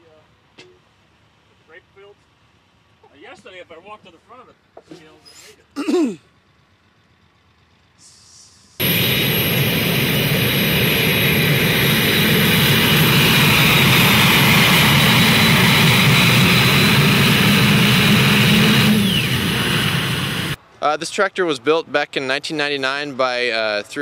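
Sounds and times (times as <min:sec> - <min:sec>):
tractor engine at full power: 0:08.8 - 0:20.6.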